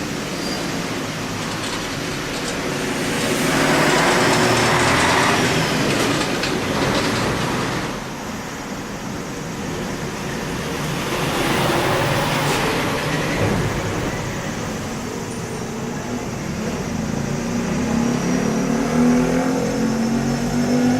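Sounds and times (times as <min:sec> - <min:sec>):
cicada buzzing: 0:00.0 - 0:20.9.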